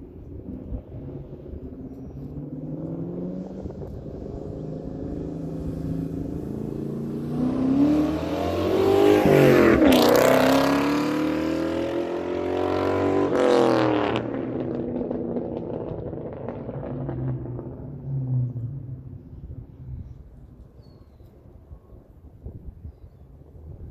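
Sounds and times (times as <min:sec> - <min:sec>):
car engine accelerating hard: 0:00.6 - 0:19.4.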